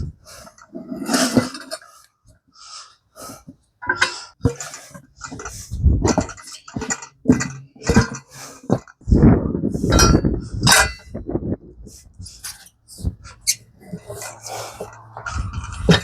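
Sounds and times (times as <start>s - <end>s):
tire irons clanking on metal: 3.8s - 9.0s, 9.8s - 11.2s, 12.3s - 16.0s.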